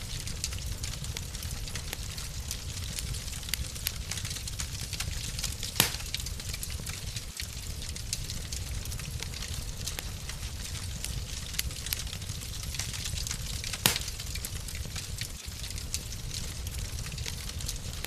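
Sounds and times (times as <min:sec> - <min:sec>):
low steady rumble: 0:00.0 - 0:18.0
wood fire crackling: 0:00.0 - 0:18.0
loud fire pop: 0:05.6 - 0:06.4, 0:13.7 - 0:14.4.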